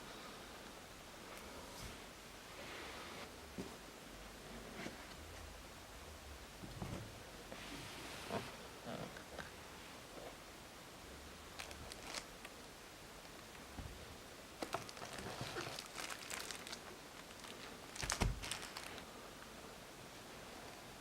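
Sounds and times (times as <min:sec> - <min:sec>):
packaging crinkling and rustling: 0:11.6 - 0:12.5, 0:14.6 - 0:19.0.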